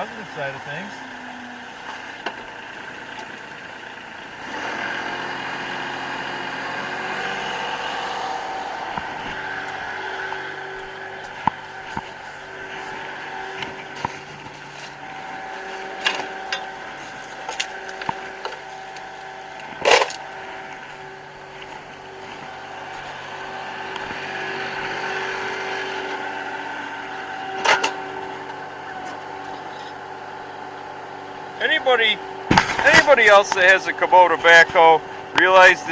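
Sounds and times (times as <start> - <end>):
tractor diesel engine running: 0.0 - 35.9
metal clanks and knocks: 8.1 - 20.4, 27.6 - 30.0.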